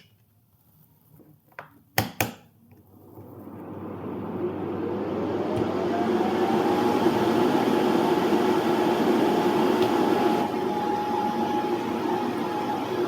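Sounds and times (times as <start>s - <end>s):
electric fans whining: 3.1s - 13.0s.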